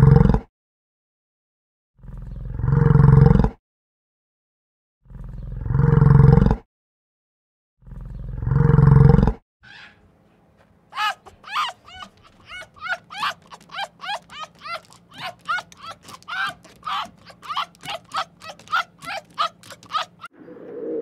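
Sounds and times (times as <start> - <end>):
fox yelping: 11.0 - 20.3
yak bellowing: 11.0 - 20.3.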